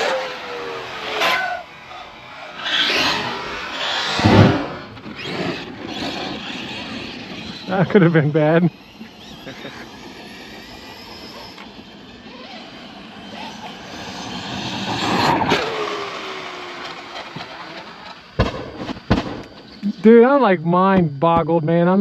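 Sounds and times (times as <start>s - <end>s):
tyre noise: 0.0s - 7.7s
electric rc car motor whine: 0.0s - 20.3s
sharp knock: 4.2s - 4.9s.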